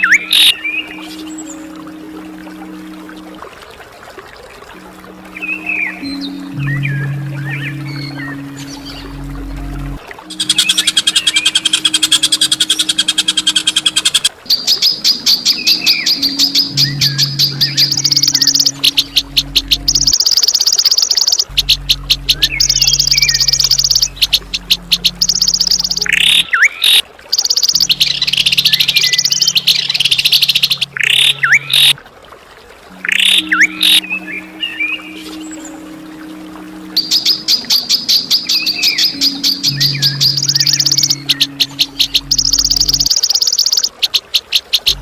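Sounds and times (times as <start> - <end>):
steady low hum: 4.8 - 13.9, 16.2 - 20.2, 21.4 - 26.2
songbird rapid high notes: 5.3 - 32.0, 36.9 - 45.0.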